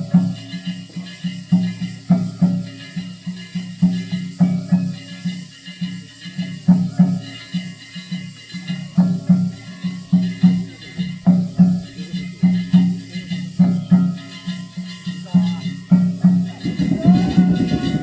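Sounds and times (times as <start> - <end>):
drum beaten in fast rhythm: 0.0 - 18.0
metallic jingling and ringing: 0.0 - 18.0.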